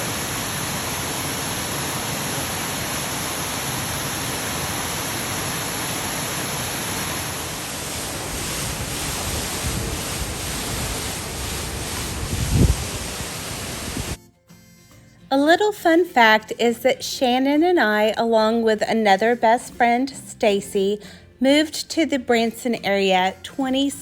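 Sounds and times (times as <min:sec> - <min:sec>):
waterfall rushing: 0:00.0 - 0:14.2
wind bumps on microphone: 0:07.6 - 0:14.2.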